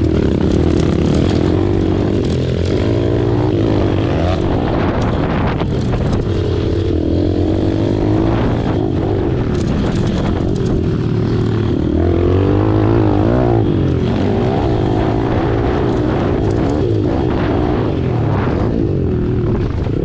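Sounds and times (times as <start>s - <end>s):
motorbike engine revving: 0.0s - 20.0s.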